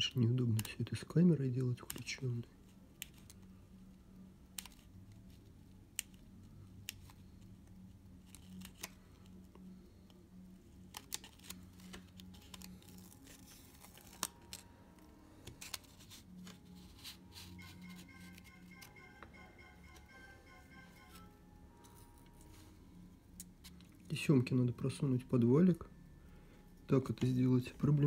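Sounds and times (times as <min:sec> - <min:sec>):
low steady hum: 0:00.0 - 0:28.0
paper and tape rustling: 0:10.8 - 0:18.4.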